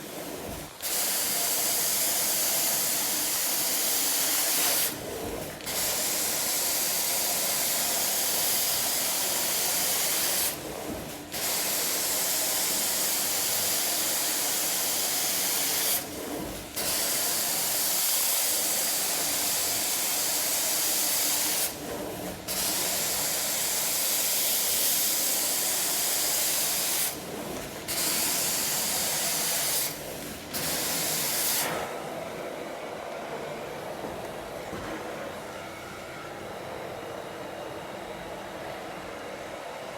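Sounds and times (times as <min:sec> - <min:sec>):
carpet cleaning wand hissing: 0:27.8 - 0:32.3.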